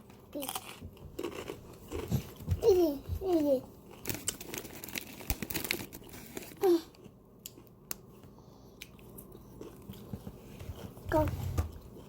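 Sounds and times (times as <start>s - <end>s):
food wrapping crinkling: 3.8s - 7.1s.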